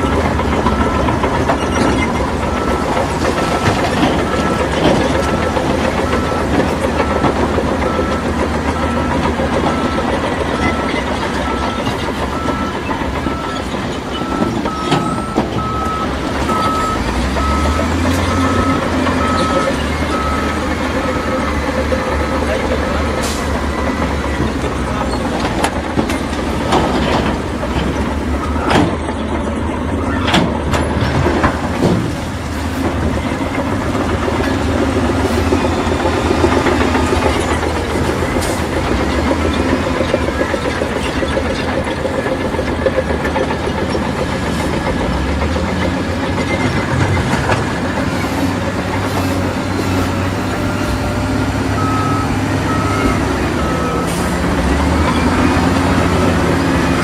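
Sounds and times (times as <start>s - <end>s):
reversing alarm beeping: 0.0s - 25.4s, 28.2s - 30.6s, 44.5s - 57.0s
heavy diesel machinery running: 0.0s - 57.0s.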